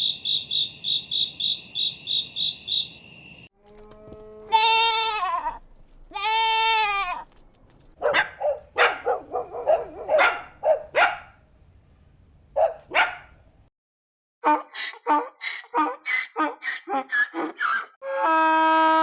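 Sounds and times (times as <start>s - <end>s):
long falling bleats: 3.6s - 7.2s
dog barking: 8.0s - 11.4s, 12.6s - 13.4s.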